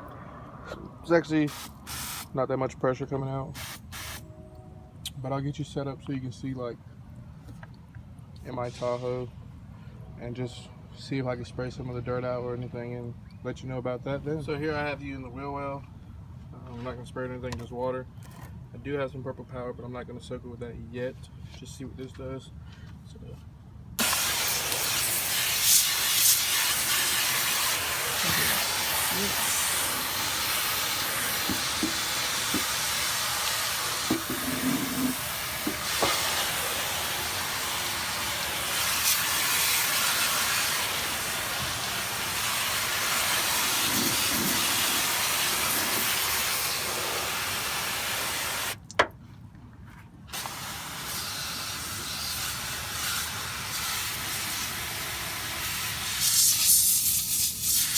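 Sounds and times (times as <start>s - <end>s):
water spray hissing: 1.5s - 2.4s, 3.6s - 4.2s, 24.0s - 48.8s, 50.3s - 57.9s.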